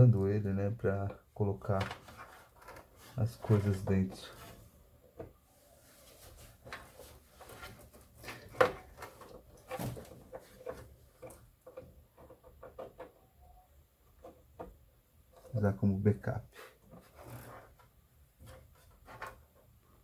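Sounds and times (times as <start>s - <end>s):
hands handling computer parts: 1.0s - 13.3s, 16.7s - 20.0s.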